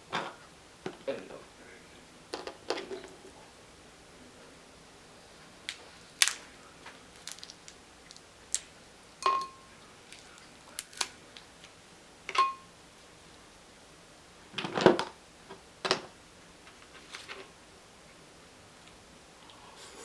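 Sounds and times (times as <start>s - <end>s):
crab shells cracking: 5.6s - 11.7s.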